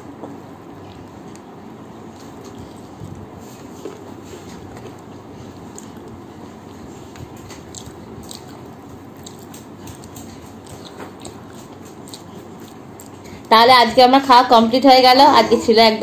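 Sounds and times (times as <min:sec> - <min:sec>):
low background noise: 0:00.0 - 0:16.0
chewing and wet mouth sounds: 0:00.8 - 0:13.5
small clicks and smacks: 0:07.1 - 0:13.4.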